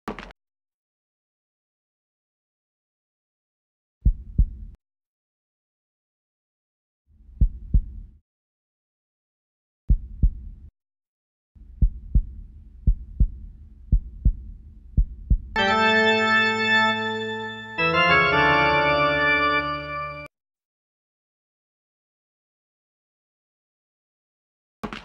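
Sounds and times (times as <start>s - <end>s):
heartbeat thumps: 4.0s - 4.8s, 7.4s - 8.2s, 9.9s - 10.7s, 11.8s - 15.6s
organ chord: 15.6s - 20.3s.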